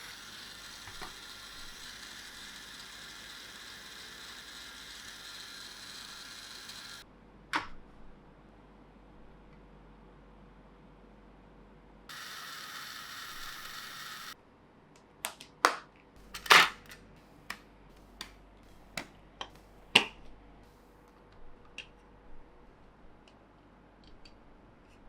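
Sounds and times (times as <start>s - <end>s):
plastic toy parts clicking: 0.1s - 7.0s.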